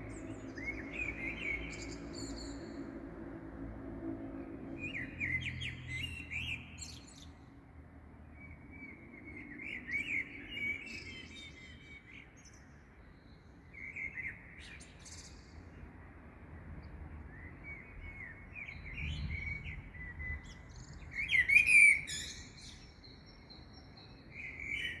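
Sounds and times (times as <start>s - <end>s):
small songbirds chirping: 0.0s - 3.1s, 8.2s - 16.0s, 16.6s - 25.0s.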